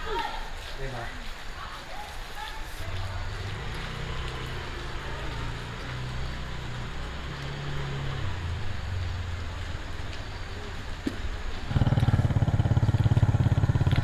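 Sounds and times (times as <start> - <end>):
engine humming: 3.0 - 14.0
rapidly pulsing engine: 11.7 - 14.0.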